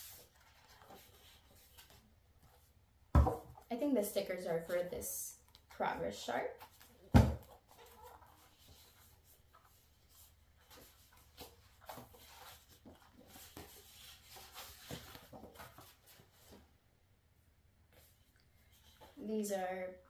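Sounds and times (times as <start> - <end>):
paper rustling: 0.0 - 2.7, 6.6 - 16.6.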